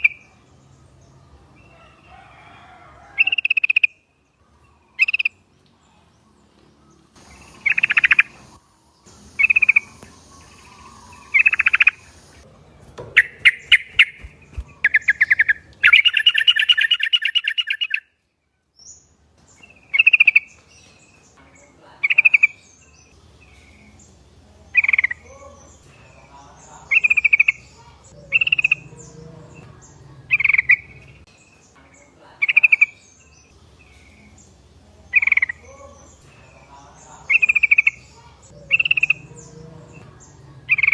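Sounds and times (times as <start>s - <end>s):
bird chattering run of notes: 13.2s - 18.0s
bird calling in short phrases: 13.2s - 18.1s.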